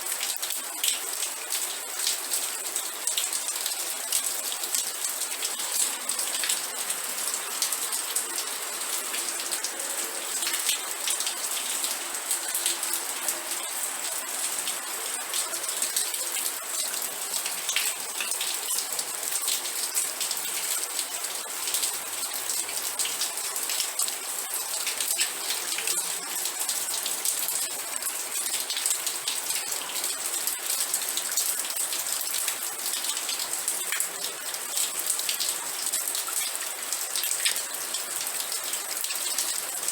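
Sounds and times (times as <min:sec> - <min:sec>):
raindrops striking a surface: 0:00.0 - 0:39.9
steady rain: 0:00.0 - 0:39.9.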